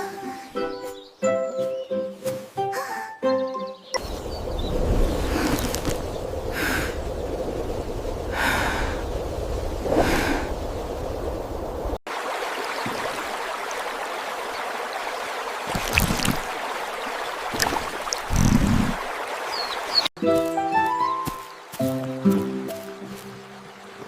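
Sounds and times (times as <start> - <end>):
stream flowing: 4.0 - 24.0
breath-like puffs: 6.5 - 7.0, 8.3 - 9.0, 9.8 - 10.6, 18.1 - 19.1.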